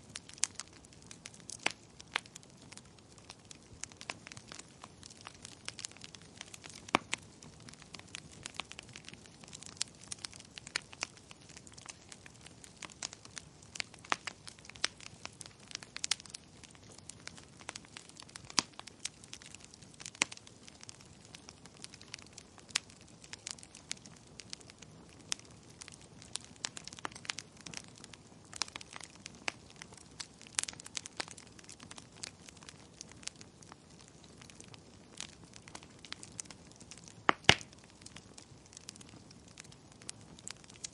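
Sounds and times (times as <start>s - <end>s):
fire crackling and popping: 0.0s - 40.9s
soft steady hiss: 0.0s - 40.9s.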